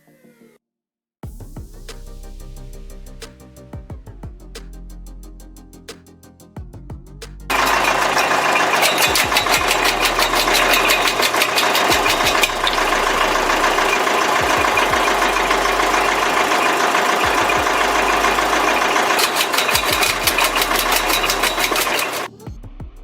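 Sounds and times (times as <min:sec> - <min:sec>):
engine-driven machine running: 0:07.5 - 0:22.3
rapid regular knocking: 0:07.5 - 0:22.3.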